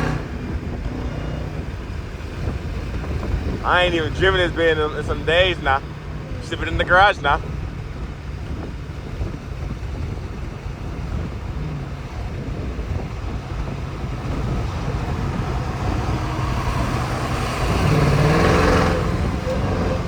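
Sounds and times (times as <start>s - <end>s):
low car engine drone: 0.0s - 20.0s.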